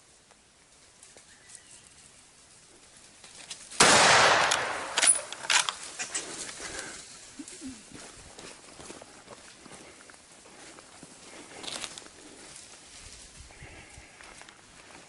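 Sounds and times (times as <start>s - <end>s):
sharp cracks: 3.5s - 6.2s
gunshot ringing out: 3.8s - 5.5s.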